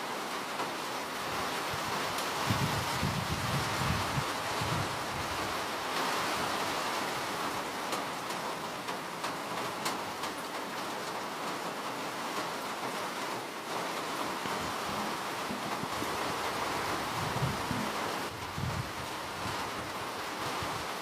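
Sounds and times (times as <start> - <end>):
steady rain hiss: 0.0 - 21.0
sharp raindrop ticks: 7.8 - 11.7.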